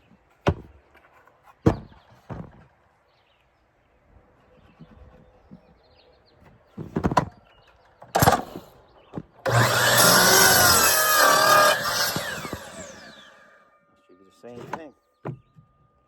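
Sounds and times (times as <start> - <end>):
wood knocks and clatters: 0.4 - 2.8, 6.7 - 8.5
power saw cutting wood: 9.4 - 13.6.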